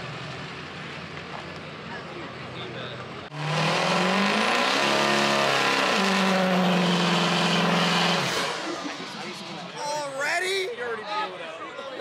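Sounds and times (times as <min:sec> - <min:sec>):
truck engine revving: 0:03.3 - 0:09.8.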